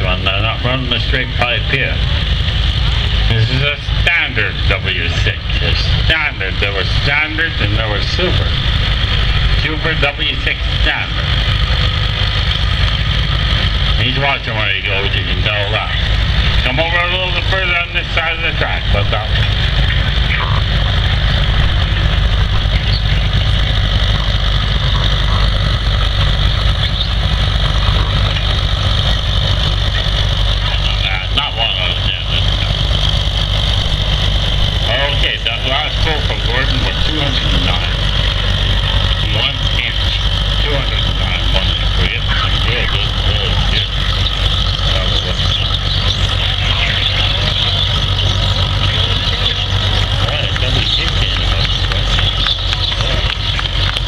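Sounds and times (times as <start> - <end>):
tractor engine running under load: 0.0 - 54.0.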